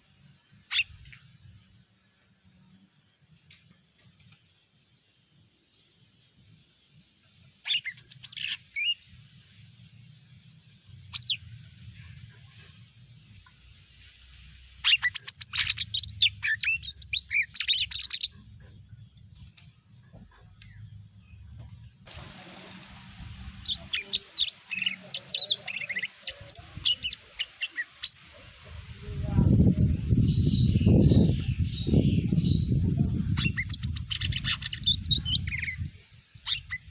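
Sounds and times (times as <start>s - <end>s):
leafbird singing: 7.6s - 9.1s, 11.0s - 12.0s, 14.6s - 19.2s, 20.6s - 36.9s.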